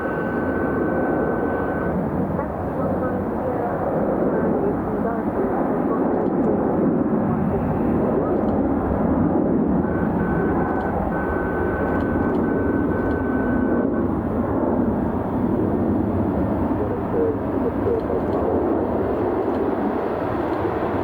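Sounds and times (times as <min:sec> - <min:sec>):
thin high whine: 0:00.0 - 0:03.2, 0:09.8 - 0:14.3
jet engines rumbling: 0:00.0 - 0:21.0.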